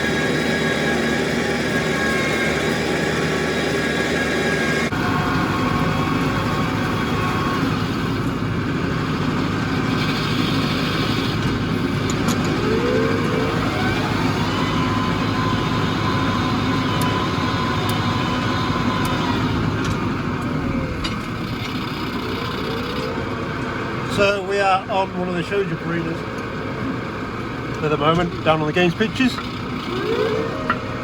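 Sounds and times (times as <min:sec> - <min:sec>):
tractor diesel engine running: 0:00.0 - 0:31.0
rising whine: 0:11.7 - 0:21.2, 0:29.8 - 0:31.0.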